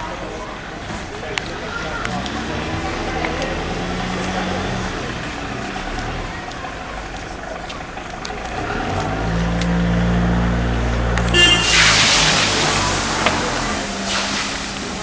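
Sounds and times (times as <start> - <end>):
vehicle engine humming: 0.0 - 15.0
horn toot: 11.2 - 13.2
loud sustained hiss: 11.5 - 15.0.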